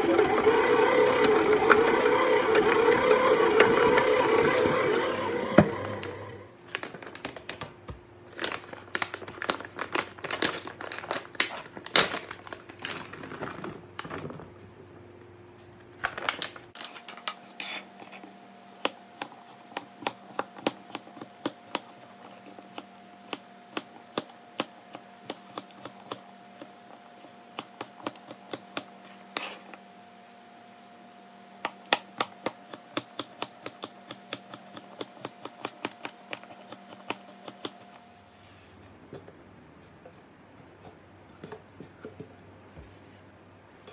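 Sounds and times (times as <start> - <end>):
plastic bag and paper crinkling: 6.6 - 7.6, 8.3 - 14.4, 16.0 - 17.5.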